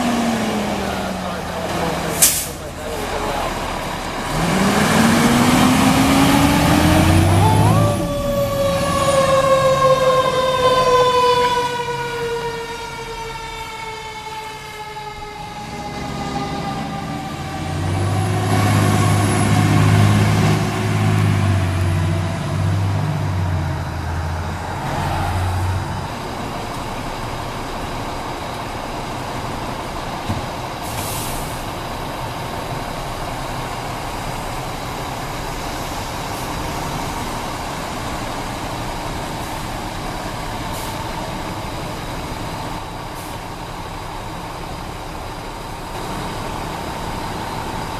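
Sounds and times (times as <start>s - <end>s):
heavy engines rumbling: 0.0s - 47.9s
siren winding down: 4.6s - 22.2s.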